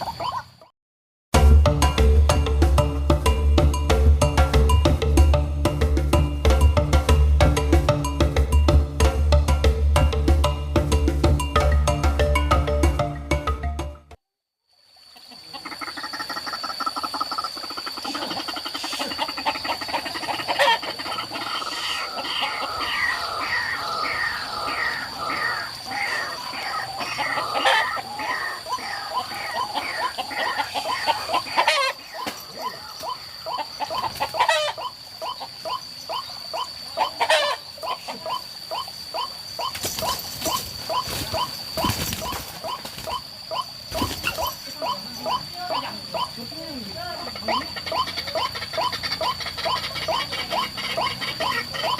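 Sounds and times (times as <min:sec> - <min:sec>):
waterhen calling: 0:00.0 - 0:00.7, 0:15.0 - 0:51.9.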